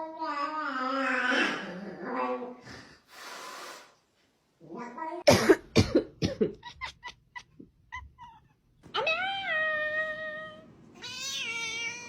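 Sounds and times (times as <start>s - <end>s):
cat coughing: 5.3s - 7.5s
cat meowing: 7.9s - 12.0s.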